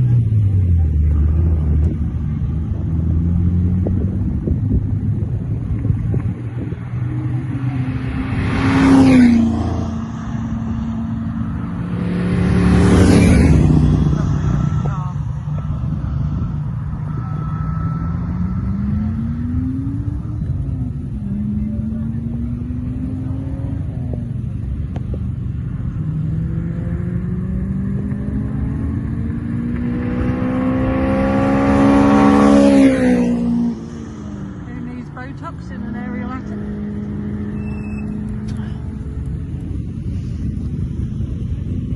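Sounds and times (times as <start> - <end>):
car driving past at speed: 0.0 - 24.4.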